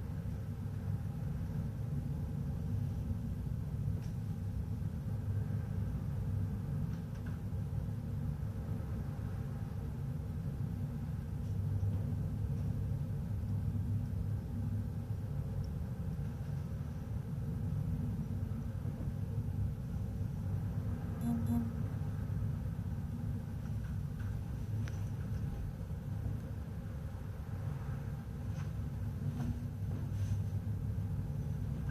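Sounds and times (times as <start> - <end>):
ship engines droning: 20.0 - 23.2.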